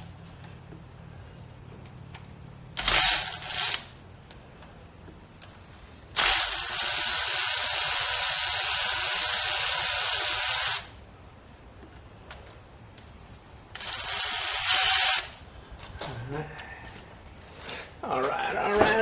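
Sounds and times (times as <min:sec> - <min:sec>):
power drill spinning bolts: 0:02.8 - 0:03.9, 0:06.2 - 0:10.9, 0:13.8 - 0:15.4.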